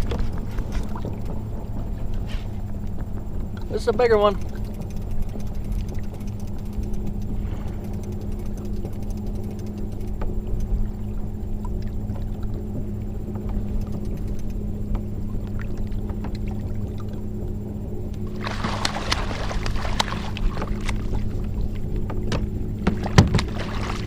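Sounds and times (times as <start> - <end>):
constant low hum: 0.0 - 24.0
low rumble on open water: 0.0 - 24.0
faint ticks: 2.8 - 10.9, 13.3 - 16.4.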